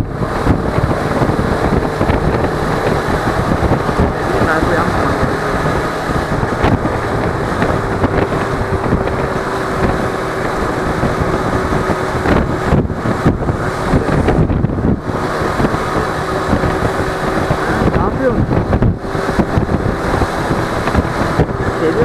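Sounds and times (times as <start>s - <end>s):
motorcycle engine running: 0.0s - 22.0s
wind buffeting microphone: 0.0s - 22.0s.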